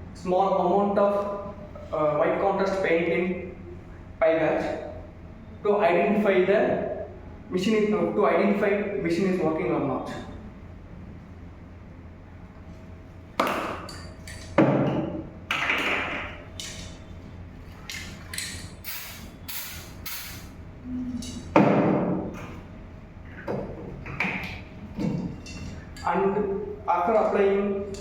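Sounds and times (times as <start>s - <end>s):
aerosol spraying: 18.8s - 20.5s.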